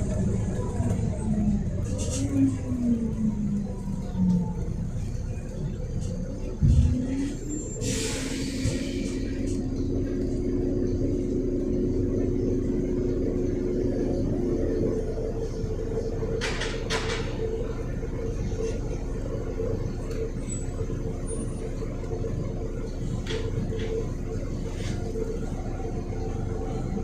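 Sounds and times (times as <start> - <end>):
bus diesel engine running: 0.0 - 27.0
air hisses: 7.8 - 9.3.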